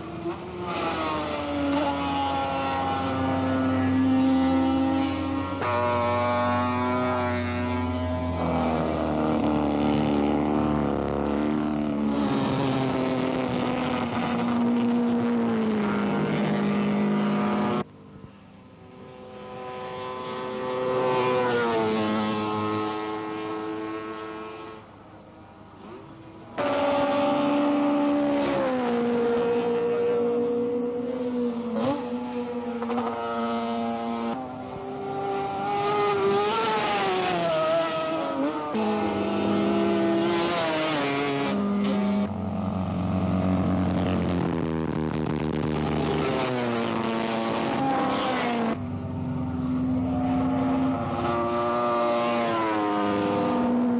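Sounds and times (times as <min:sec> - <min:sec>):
racing motorcycle engines: 0:00.0 - 0:53.9.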